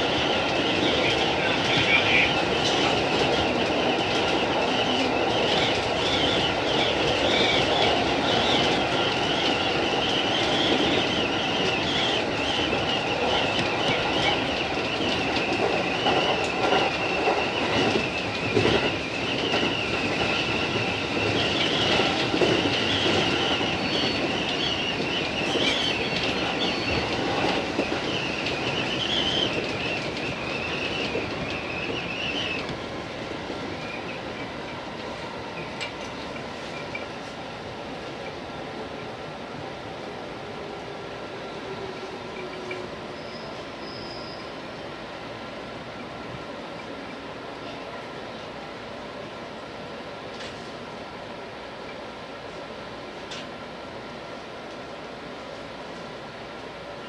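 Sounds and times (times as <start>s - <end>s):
rail clatter: 0.0s - 39.2s, 40.4s - 45.3s
train running noise: 0.0s - 57.0s
high wheel squeal: 42.5s - 44.6s.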